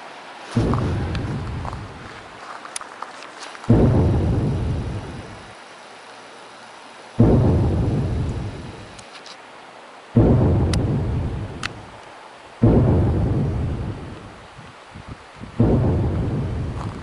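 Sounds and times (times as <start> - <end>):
deep booming thunder: 0.6 - 2.3, 3.7 - 5.5, 7.2 - 8.9, 10.2 - 12.0, 12.6 - 17.0.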